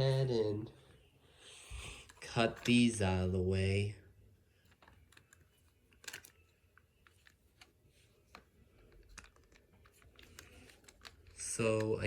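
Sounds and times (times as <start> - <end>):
clicks on plastic toy parts: 8.3 - 12.0.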